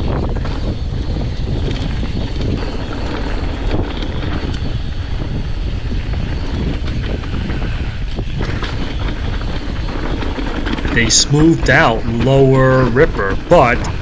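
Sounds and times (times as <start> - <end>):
wind buffeting microphone: 0.0 - 14.0
bike rattling: 2.6 - 4.6, 8.6 - 14.0.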